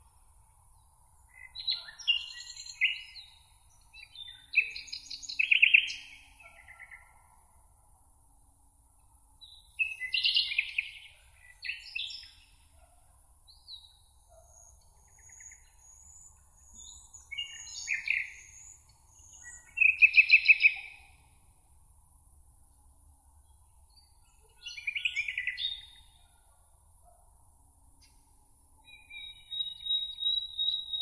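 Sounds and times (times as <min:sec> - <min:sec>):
songbirds singing: 0:00.8 - 0:07.2, 0:09.4 - 0:21.4, 0:23.4 - 0:26.5, 0:28.8 - 0:31.0.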